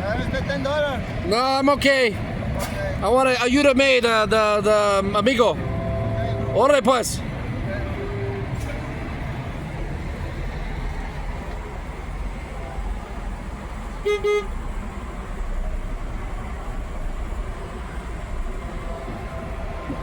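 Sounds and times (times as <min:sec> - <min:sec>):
truck engine idling: 0:00.0 - 0:20.0
vehicle horn toots: 0:14.0 - 0:14.6.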